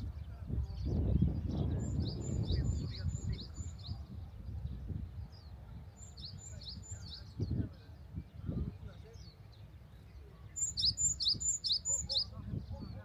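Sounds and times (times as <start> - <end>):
small bird chirping: 10.5 - 12.4.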